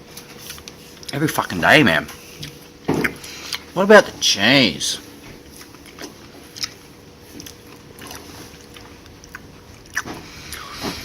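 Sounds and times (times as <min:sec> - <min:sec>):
person chewing: 0:00.1 - 0:01.2, 0:02.3 - 0:03.8, 0:05.4 - 0:11.0.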